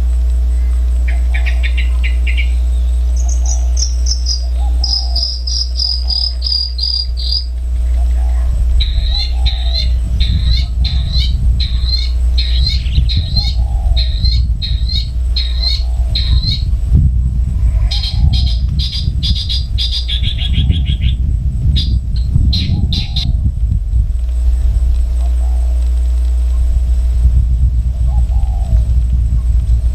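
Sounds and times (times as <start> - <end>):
steady low rumble: 0.0 - 29.9
bird calling short notes: 0.6 - 16.7.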